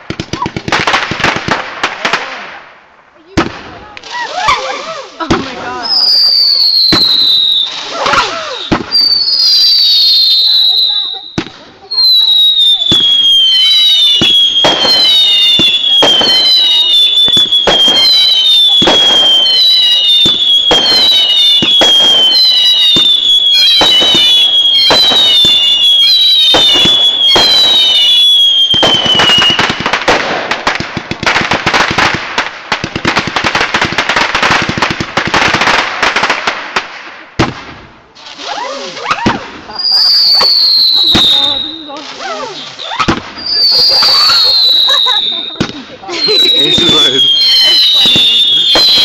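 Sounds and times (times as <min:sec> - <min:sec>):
rapid firework crackling: 0:00.0 - 0:49.0
firework bangs with falling whistle: 0:05.9 - 0:32.2, 0:38.5 - 0:42.0, 0:42.7 - 0:49.0.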